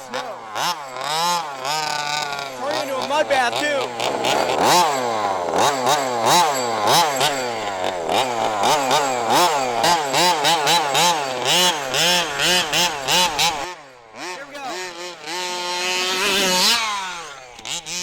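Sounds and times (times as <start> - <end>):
small two-stroke engine revving: 0.0 - 18.0.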